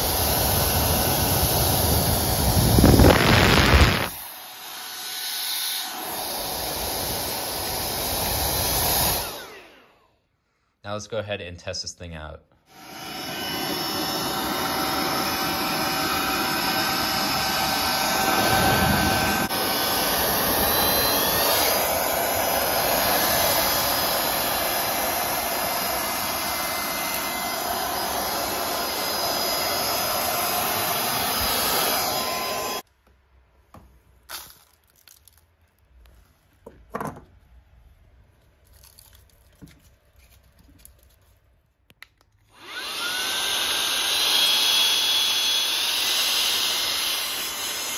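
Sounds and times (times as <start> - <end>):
air duster vacuum running: 0.0 - 10.1, 12.7 - 32.8, 42.5 - 47.9.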